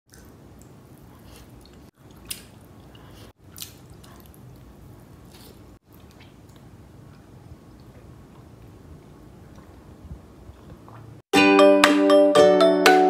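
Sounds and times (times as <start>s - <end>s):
chewing rice: 0.1s - 8.8s
wet mouth clicks: 5.3s - 6.7s.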